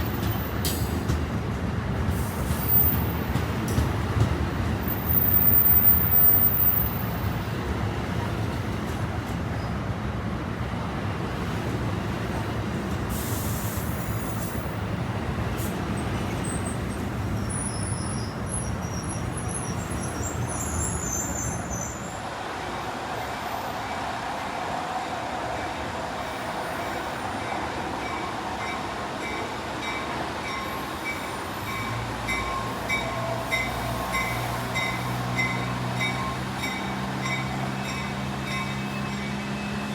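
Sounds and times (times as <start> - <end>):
train wheels rumbling: 0.0 - 9.9
air hiss: 13.1 - 14.5.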